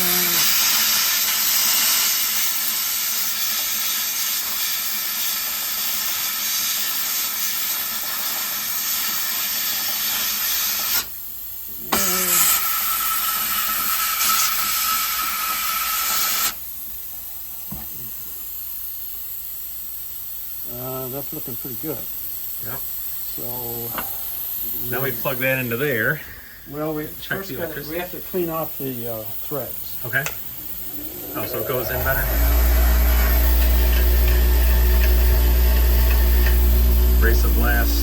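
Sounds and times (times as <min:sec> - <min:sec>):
abrasive blast hissing: 0:00.0 - 0:03.0, 0:22.6 - 0:38.0
air blast whistling hiss: 0:00.0 - 0:11.3, 0:11.9 - 0:16.6, 0:25.9 - 0:26.9.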